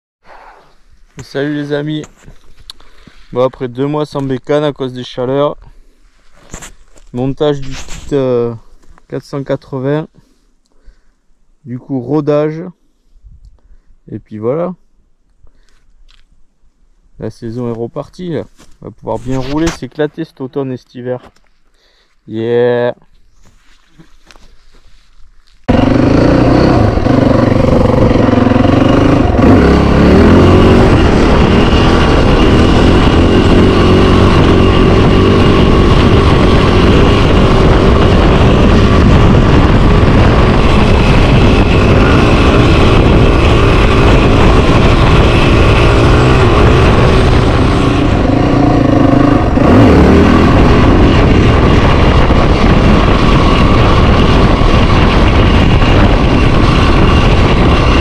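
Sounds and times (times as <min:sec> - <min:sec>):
dirt bike engine revving: 0:25.7 - 0:58.0.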